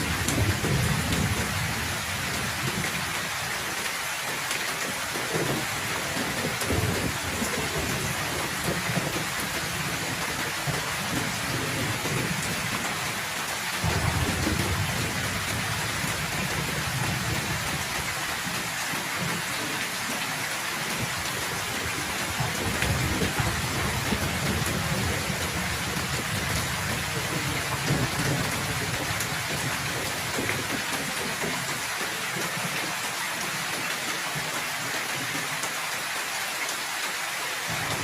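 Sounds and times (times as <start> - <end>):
rolling thunder: 0.0 - 3.0, 5.3 - 12.8, 13.8 - 18.6, 21.0 - 31.2
heavy rain: 0.0 - 38.0.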